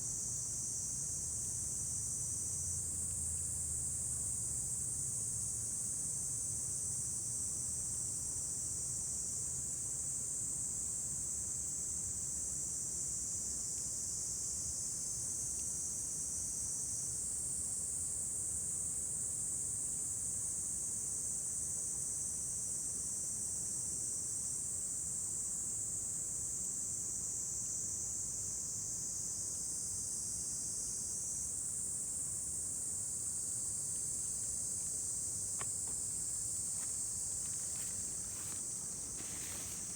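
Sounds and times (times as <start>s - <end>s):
crickets trilling: 31.3s - 39.9s.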